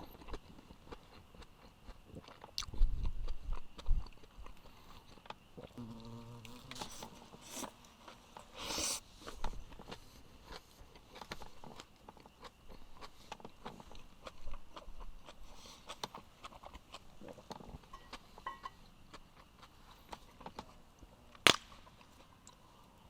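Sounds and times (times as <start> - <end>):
short hiss: 8.5 - 9.1.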